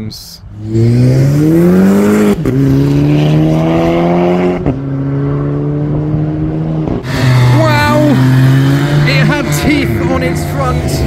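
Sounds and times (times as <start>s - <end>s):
car engine accelerating through gears: 0.6s - 11.0s.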